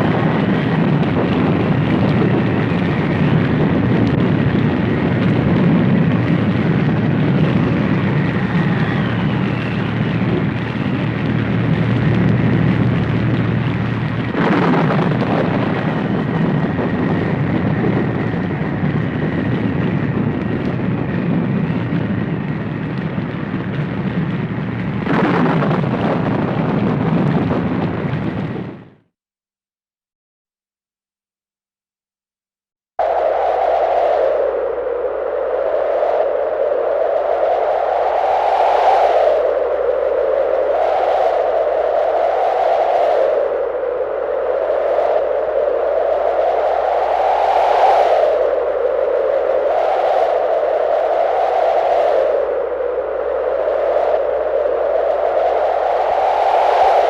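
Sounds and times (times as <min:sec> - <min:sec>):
dense low rumble: 0:00.0 - 0:29.0.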